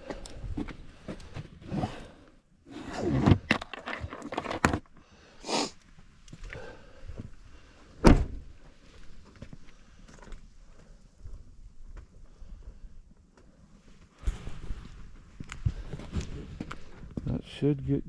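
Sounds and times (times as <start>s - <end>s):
wood rustling and scraping: 0.6s - 5.0s.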